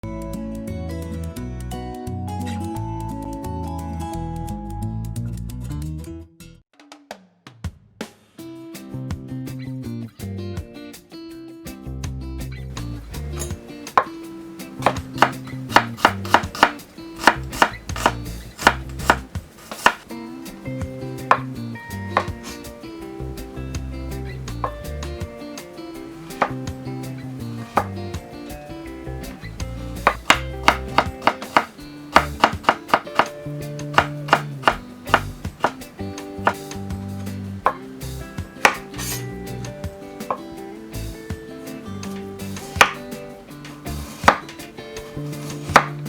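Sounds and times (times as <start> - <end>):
instrumental background music: 0.0 - 46.0
knife chopping on cutting board: 13.2 - 20.1, 21.2 - 22.6, 26.1 - 26.7, 27.6 - 28.0, 29.3 - 36.7, 37.7 - 37.9, 38.6 - 39.1, 42.5 - 43.1, 43.9 - 46.0.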